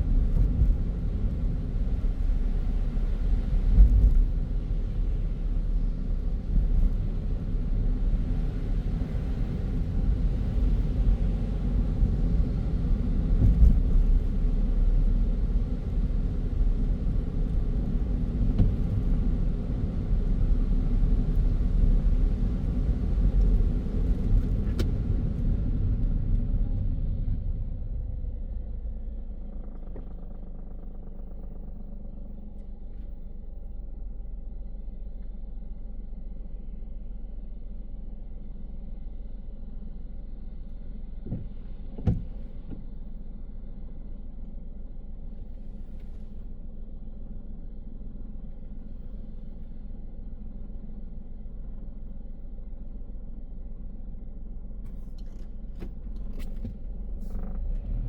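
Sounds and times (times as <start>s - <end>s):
car tyres and engine rumble: 0.0s - 58.0s.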